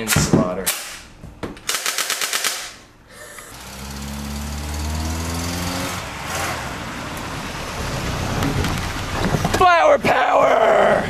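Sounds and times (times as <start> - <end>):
toy rifle rattling burst: 1.7 - 2.8
car engine driving: 3.5 - 11.0.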